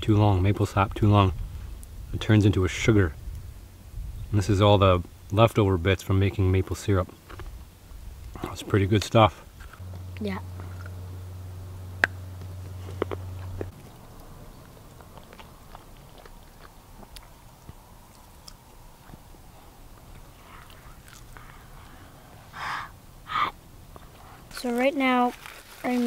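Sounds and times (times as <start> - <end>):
person biting and chewing food: 10.6 - 11.0, 12.0 - 22.0.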